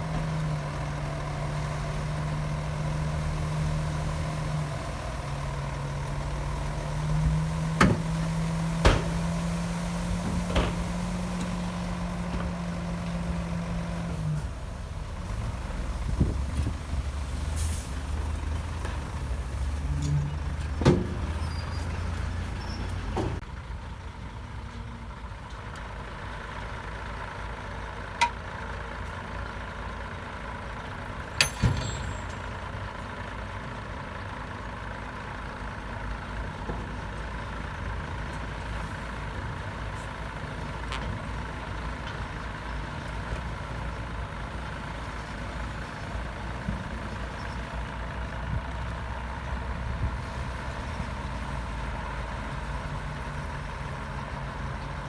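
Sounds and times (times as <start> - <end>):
diesel earthmoving machinery rumbling: 0.0 - 55.0
sharp metallic knocks: 8.8 - 9.4, 31.4 - 32.5.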